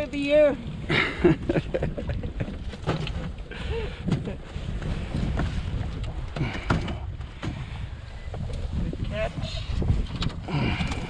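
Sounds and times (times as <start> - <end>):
wind buffeting microphone: 0.0 - 11.0
handling knocks and clatter: 2.4 - 7.7.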